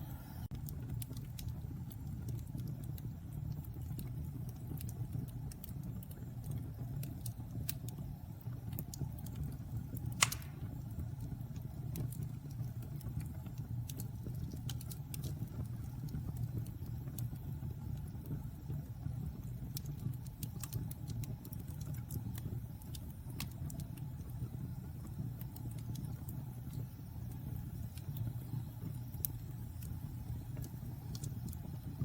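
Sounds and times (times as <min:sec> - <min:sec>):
fire crackling: 0:00.0 - 0:32.0
fire rumbling in a fireplace: 0:00.0 - 0:32.0
sharp fire pop: 0:10.1 - 0:10.9.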